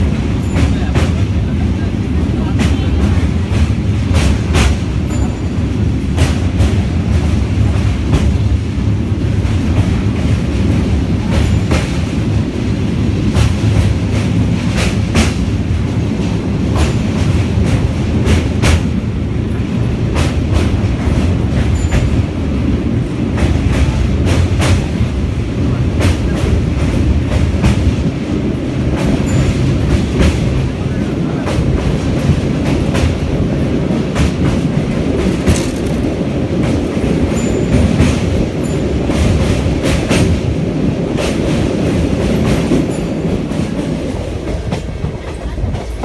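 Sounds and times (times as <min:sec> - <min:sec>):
train rumbling: 0:00.0 - 0:46.0
wheels clicking over rail joints: 0:13.2 - 0:46.0.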